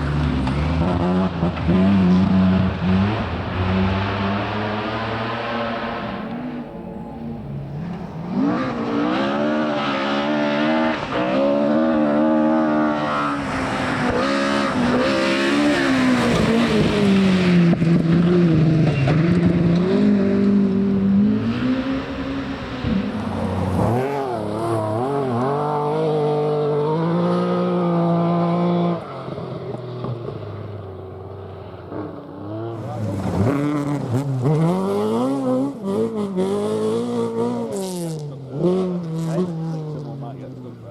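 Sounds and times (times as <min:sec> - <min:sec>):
rally car engine revving: 0:00.0 - 0:40.9.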